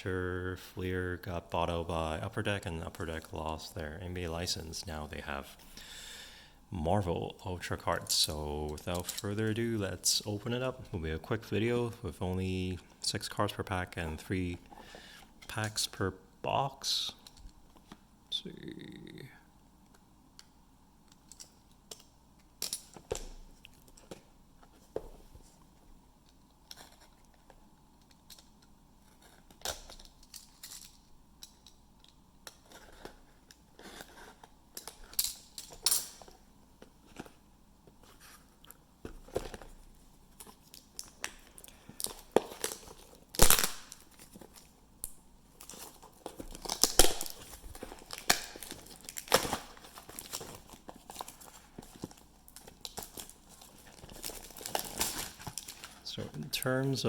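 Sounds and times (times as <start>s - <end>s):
packaging tearing and crinkling: 42.0s - 44.7s, 45.6s - 56.0s.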